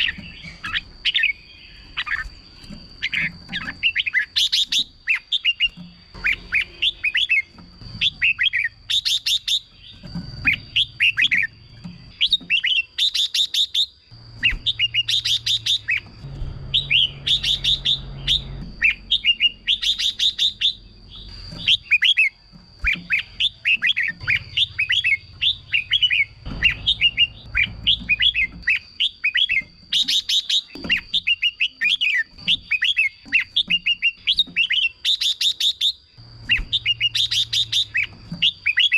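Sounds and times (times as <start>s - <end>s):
bird singing whistled notes: 0.0s - 38.9s
bird trills: 0.0s - 38.9s.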